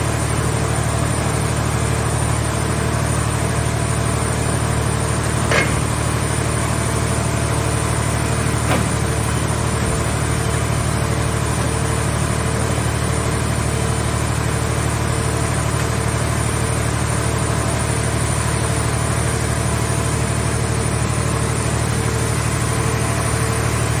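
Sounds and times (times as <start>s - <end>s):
engine running steadily: 0.0s - 24.0s
sharp metallic knocks: 5.4s - 6.1s.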